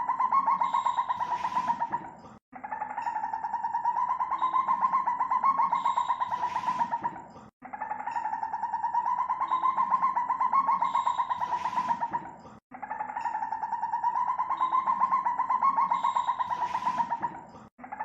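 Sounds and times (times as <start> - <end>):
civet trilling call: 0.0 - 2.0, 4.2 - 7.0, 9.1 - 12.1, 14.1 - 17.3.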